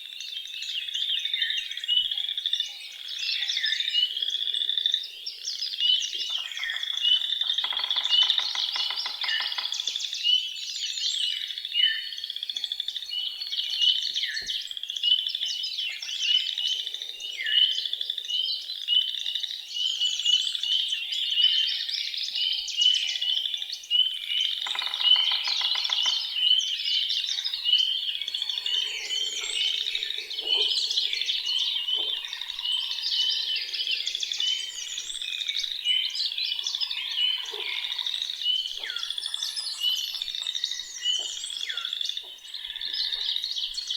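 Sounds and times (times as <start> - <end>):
songbirds singing and chirping: 0.0 - 43.9
lower bird calls: 24.6 - 43.9.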